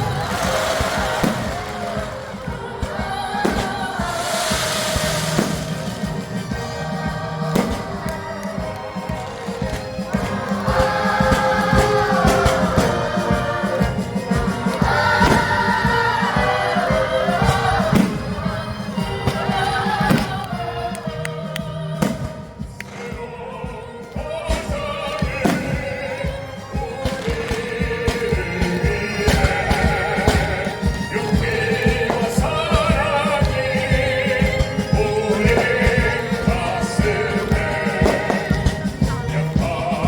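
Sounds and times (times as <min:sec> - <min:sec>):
sharp bangs: 0:00.0 - 0:20.4
choir and solo voices singing: 0:00.0 - 0:40.0
symphony orchestra playing: 0:00.0 - 0:40.0.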